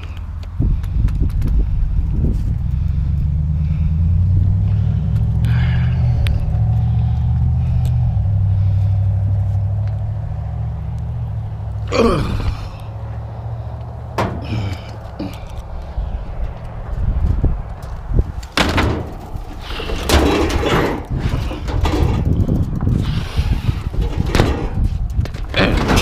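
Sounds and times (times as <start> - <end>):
truck engine rumbling: 0.0 - 26.0.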